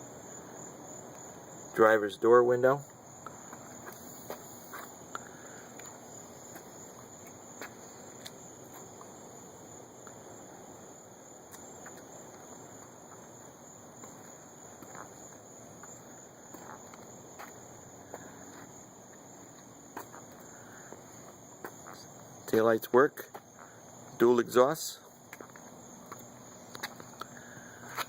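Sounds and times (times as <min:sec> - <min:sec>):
insect chorus buzzing: 0:00.0 - 0:28.0
soft footsteps: 0:02.8 - 0:09.2, 0:11.4 - 0:22.2, 0:25.0 - 0:28.0.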